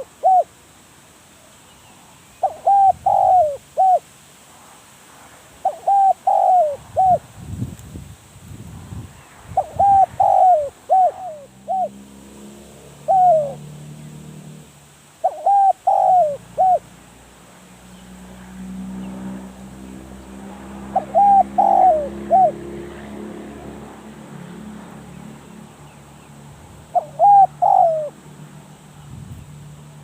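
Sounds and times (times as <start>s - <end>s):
dove cooing: 0.0s - 0.5s, 2.4s - 4.0s, 5.6s - 7.2s, 9.6s - 17.0s, 20.4s - 23.8s, 26.8s - 28.2s.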